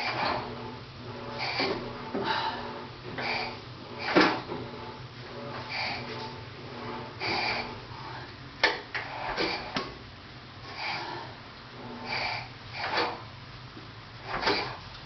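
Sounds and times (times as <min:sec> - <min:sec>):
engine compression puffs: 0:01.1 - 0:04.9, 0:14.2 - 0:14.9.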